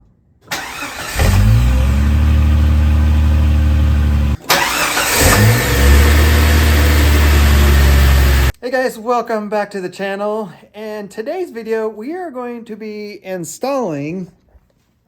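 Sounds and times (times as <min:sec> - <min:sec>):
engine cranking: 0:00.5 - 0:02.3, 0:04.4 - 0:08.5
car engine idling: 0:00.6 - 0:08.5.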